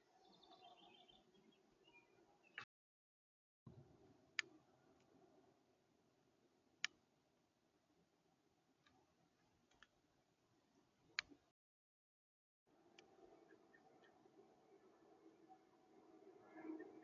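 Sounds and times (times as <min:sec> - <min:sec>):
sharp isolated clicks: 0:06.8 - 0:07.0.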